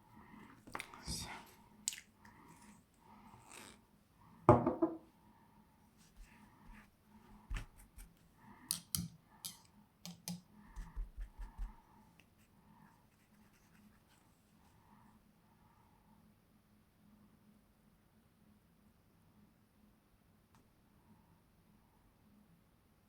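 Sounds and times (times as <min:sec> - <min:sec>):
painting tools clicking and tapping: 0:08.6 - 0:11.7.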